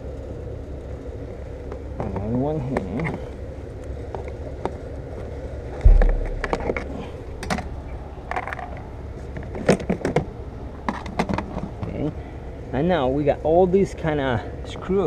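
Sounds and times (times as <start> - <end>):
heavy thump: 5.8 - 7.6.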